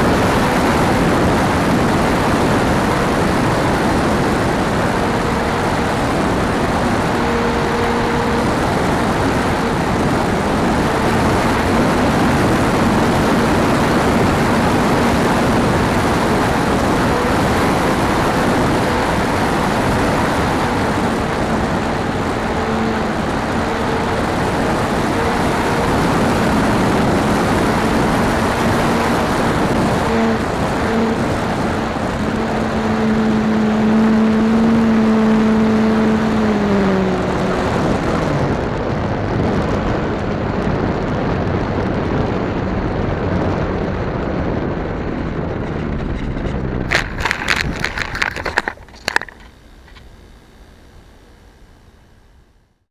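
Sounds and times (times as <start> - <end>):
wind noise on microphone: 0.0 - 51.9
model plane motor whine: 0.0 - 52.6
sharp clicks and knocks: 45.5 - 50.1.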